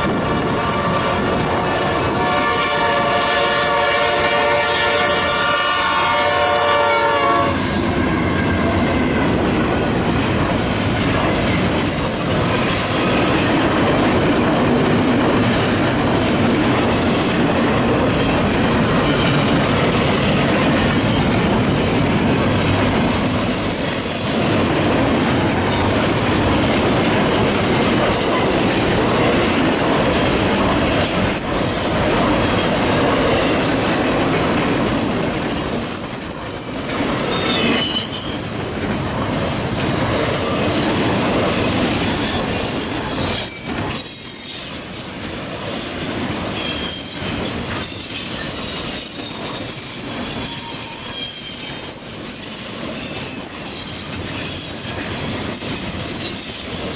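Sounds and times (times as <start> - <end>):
train wheels rumbling on rail: 0.0 - 56.9
high-pitched wheel squeal: 33.4 - 40.9, 47.9 - 49.4, 50.2 - 53.8.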